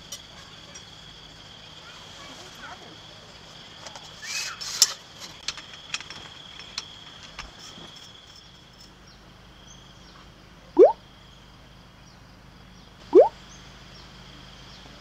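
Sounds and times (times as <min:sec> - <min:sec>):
high-pitched insect trill: 0:00.0 - 0:10.2.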